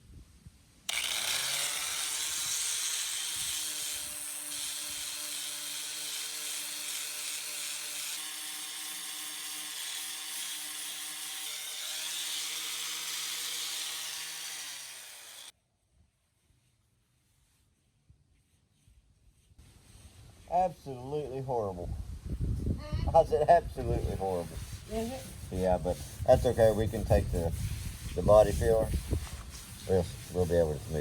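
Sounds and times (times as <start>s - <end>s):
electric sander grinding: 0.9s - 15.5s.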